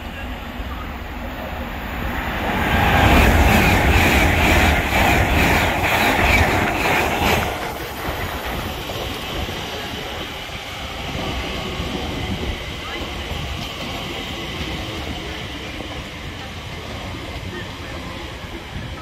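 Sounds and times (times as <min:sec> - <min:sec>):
quiet electric train running: 0:00.0 - 0:19.0
train wheels clattering over joints: 0:03.0 - 0:09.8.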